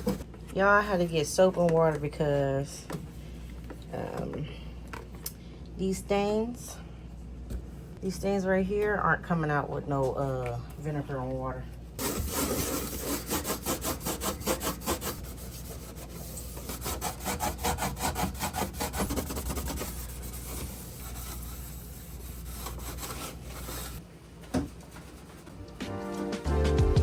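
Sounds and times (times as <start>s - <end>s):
sponge scrubbing a surface: 12.0s - 24.0s.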